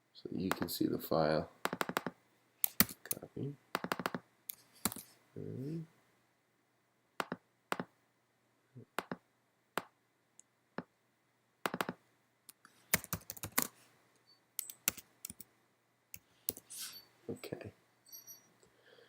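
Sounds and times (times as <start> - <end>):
keyboard keystrokes: 7.2 - 7.9, 11.7 - 12.0, 13.0 - 13.7.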